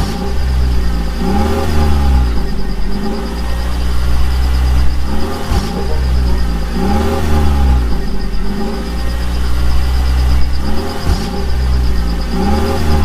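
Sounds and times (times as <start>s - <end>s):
heavy vehicle engine rumbling: 0.0s - 13.0s
high whine: 0.0s - 13.0s.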